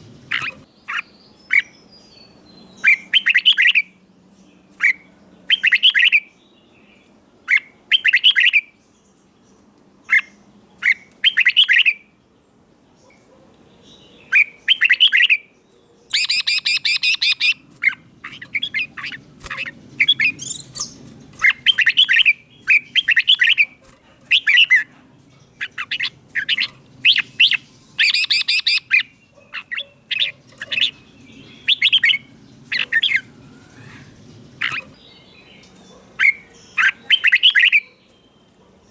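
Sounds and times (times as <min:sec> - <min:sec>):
bird singing whistled phrases: 0:05.5 - 0:06.3, 0:10.9 - 0:12.0, 0:14.3 - 0:15.4, 0:16.1 - 0:17.6, 0:25.6 - 0:29.1, 0:31.5 - 0:32.2, 0:36.2 - 0:38.5.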